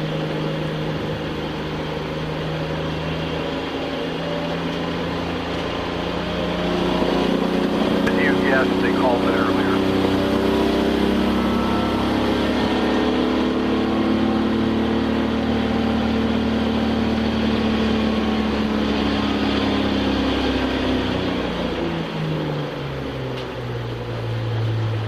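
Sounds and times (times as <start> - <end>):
race car engine from inside: 0.0 - 25.0
road and wind noise: 0.0 - 25.0.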